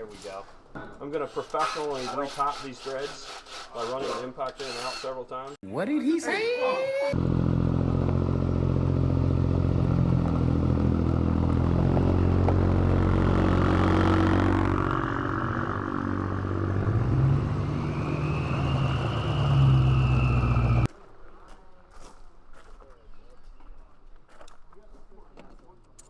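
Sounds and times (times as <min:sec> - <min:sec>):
diesel truck engine running: 0:07.2 - 0:20.9.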